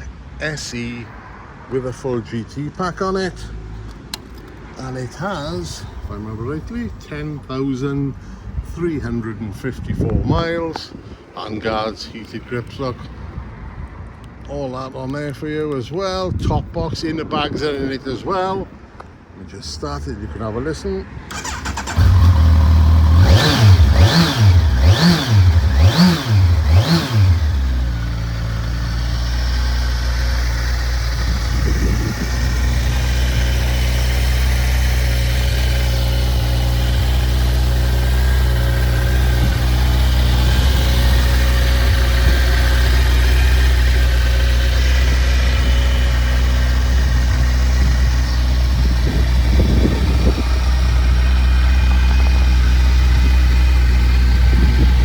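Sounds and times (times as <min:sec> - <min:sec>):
motorcycle engine revving and idling: 0:21.3 - 0:55.0.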